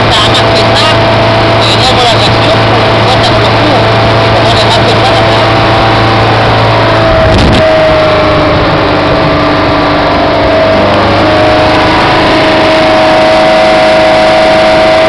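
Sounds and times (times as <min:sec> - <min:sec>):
speedboat engine drone: 0:00.0 - 0:15.0
water noise: 0:00.0 - 0:15.0
wind noise: 0:05.3 - 0:14.8.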